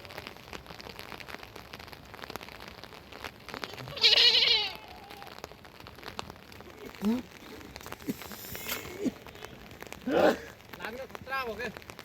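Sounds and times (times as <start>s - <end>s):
goat or sheep bleating: 3.6s - 5.3s.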